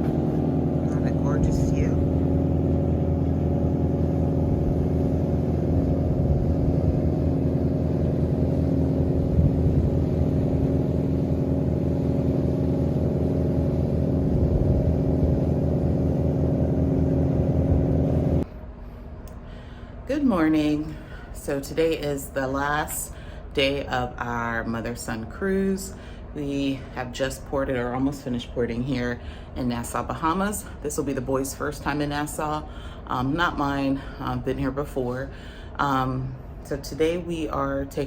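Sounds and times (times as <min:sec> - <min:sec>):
deep drone of large engine: 0:00.0 - 0:22.1.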